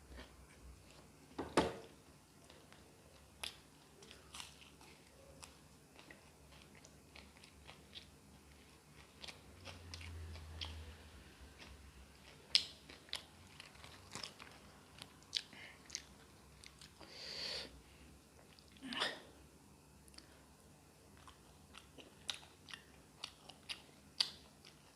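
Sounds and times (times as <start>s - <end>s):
person chewing food: 0.0s - 17.2s, 18.2s - 18.8s, 20.0s - 24.9s.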